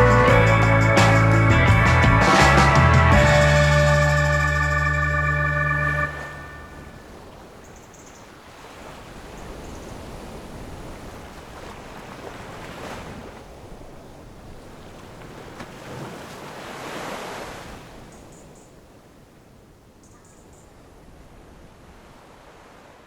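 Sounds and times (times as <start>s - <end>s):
rushing water: 3.5s - 20.0s
wind noise: 8.5s - 16.3s.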